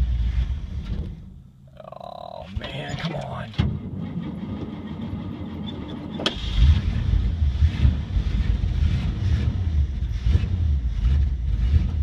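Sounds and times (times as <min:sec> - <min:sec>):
truck engine starting roughly: 0:03.6 - 0:12.0.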